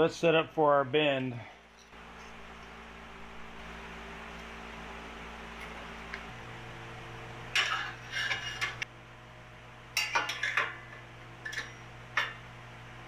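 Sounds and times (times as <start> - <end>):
steady low hum: 0.0 - 13.0
steel clanking and clinking: 7.5 - 8.8, 10.0 - 12.4.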